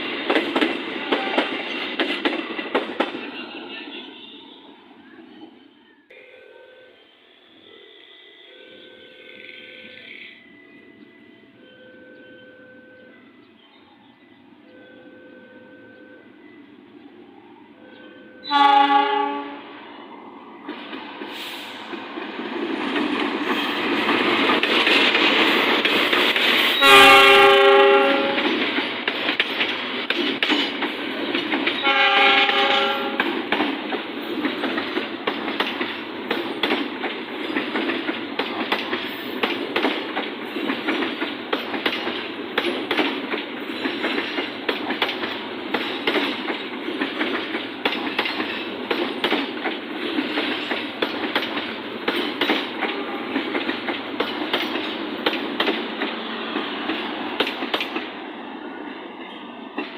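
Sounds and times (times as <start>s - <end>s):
wheels clacking over rail joints: 0.0s - 4.3s, 20.6s - 58.3s
train rumble: 0.0s - 59.9s
train horn blasts: 1.0s - 1.6s, 17.8s - 19.9s, 26.7s - 28.6s, 31.8s - 33.4s, 52.8s - 53.6s.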